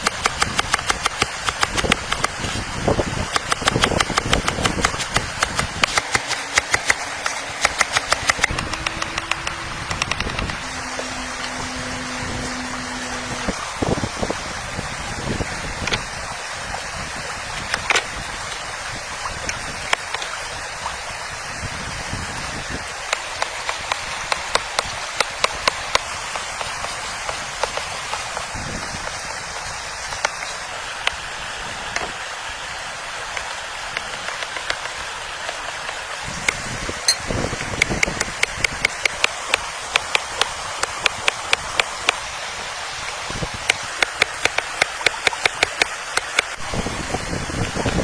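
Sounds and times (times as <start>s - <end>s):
sharp ticks: 0.0s - 2.5s, 3.3s - 10.7s, 23.1s - 26.9s, 36.5s - 42.2s, 43.7s - 46.6s
rushing water: 0.0s - 48.0s.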